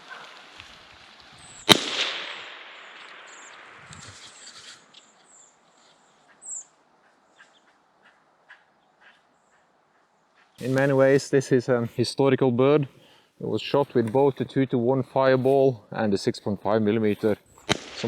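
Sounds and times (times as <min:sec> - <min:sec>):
rifle shot with echo: 0:01.6 - 0:03.8, 0:17.6 - 0:18.0.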